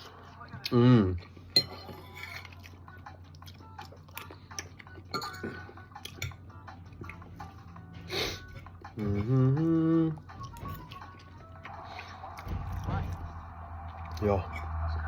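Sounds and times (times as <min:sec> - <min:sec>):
cutlery clinking on a plate: 0:01.5 - 0:02.6, 0:05.1 - 0:06.4.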